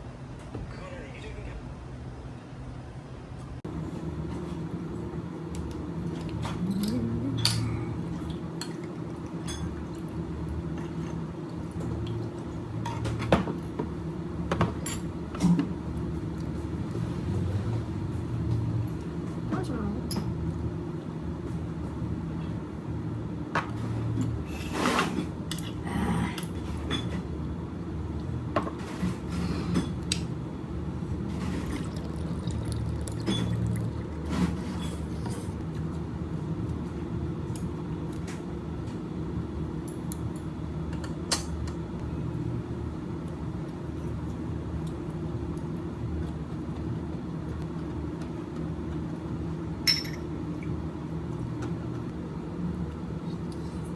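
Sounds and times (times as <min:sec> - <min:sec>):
low room hum: 0:00.0 - 0:53.9
glasses and dishes clinking: 0:09.4 - 0:09.8, 0:31.5 - 0:35.6, 0:49.8 - 0:50.3.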